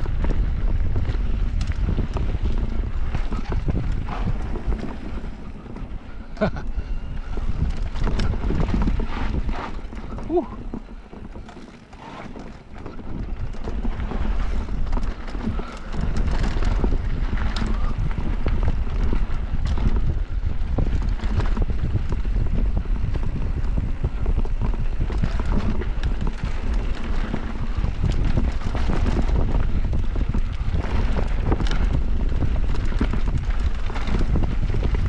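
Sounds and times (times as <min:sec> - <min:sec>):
bike rattles and knocks: 0:00.0 - 0:35.0
steady rumble of bike riding: 0:00.0 - 0:35.0
wind buffeting microphone: 0:00.0 - 0:35.0.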